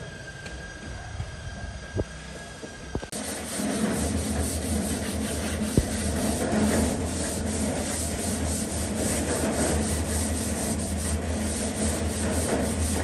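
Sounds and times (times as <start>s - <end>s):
steady low hum: 0.0s - 13.0s
sanding a surface: 3.1s - 13.0s.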